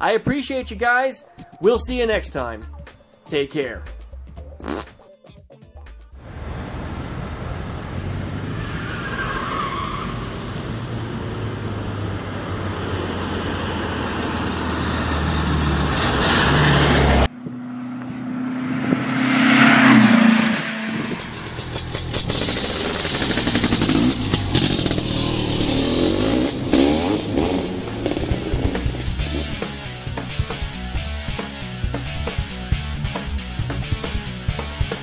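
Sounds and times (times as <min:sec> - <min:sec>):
whoosh: 0:16.1 - 0:29.8
car engine running: 0:19.9 - 0:31.2.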